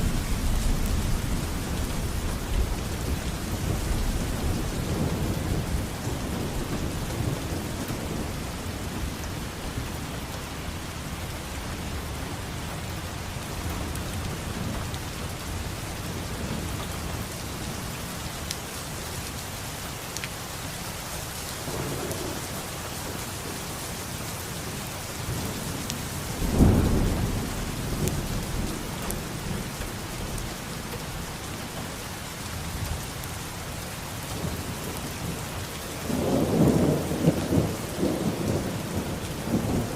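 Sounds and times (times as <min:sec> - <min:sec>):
steady rain falling: 0:00.0 - 0:39.9
rolling thunder: 0:25.3 - 0:30.6, 0:36.0 - 0:39.9
loud thunderclap: 0:26.4 - 0:29.7, 0:36.1 - 0:39.9.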